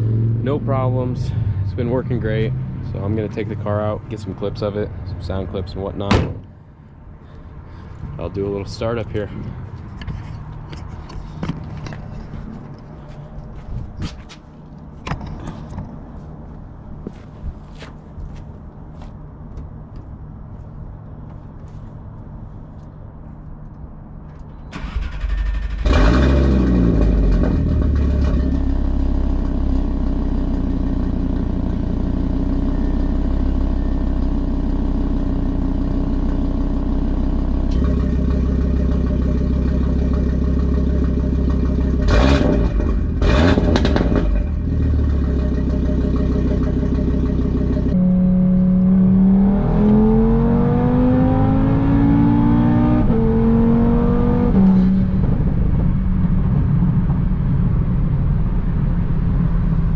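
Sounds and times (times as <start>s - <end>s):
car engine idling: 0.7s - 13.8s, 14.4s - 49.0s
car engine cranking: 24.4s - 29.6s, 37.7s - 49.0s.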